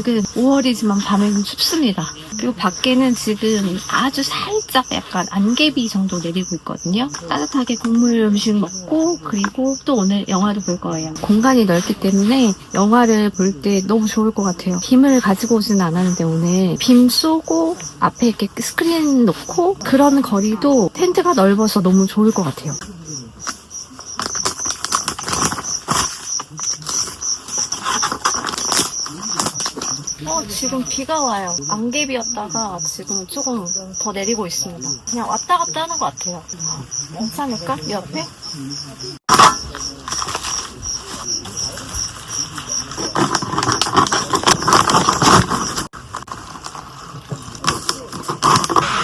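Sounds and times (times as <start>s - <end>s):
insect chirping: 0.0s - 49.0s
knocks and rustling: 22.4s - 31.6s, 39.3s - 49.0s.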